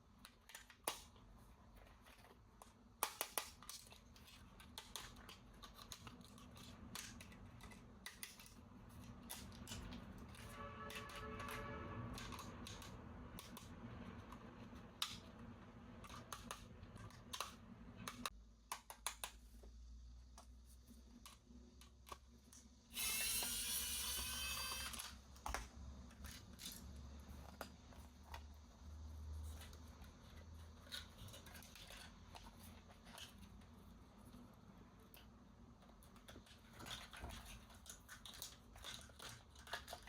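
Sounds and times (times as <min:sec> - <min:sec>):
plastic toy parts clicking: 0:00.1 - 0:15.4, 0:16.0 - 0:19.4, 0:21.2 - 0:28.5, 0:35.1 - 0:40.0.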